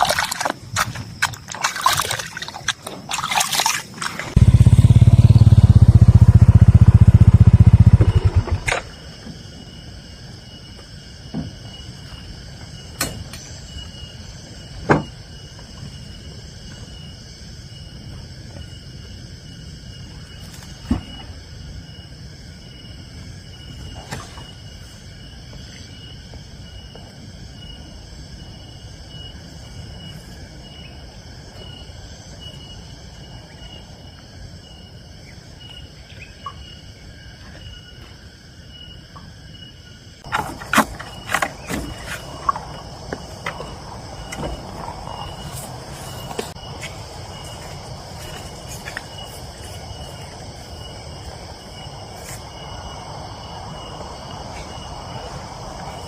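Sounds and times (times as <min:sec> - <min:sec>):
insects chirping: 0:00.0 - 0:56.0.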